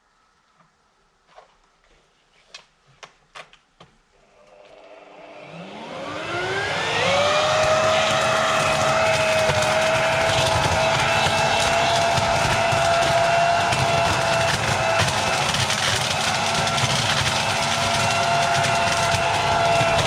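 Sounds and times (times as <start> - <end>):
garden blower motor whining: 4.3 - 20.0.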